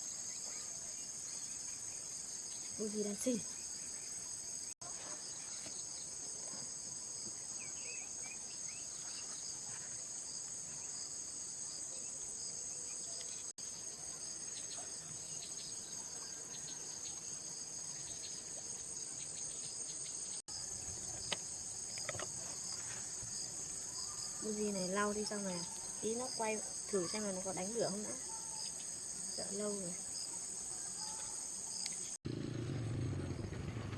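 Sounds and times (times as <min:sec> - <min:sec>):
high-pitched insect chorus: 0:00.0 - 0:04.8, 0:13.6 - 0:32.2.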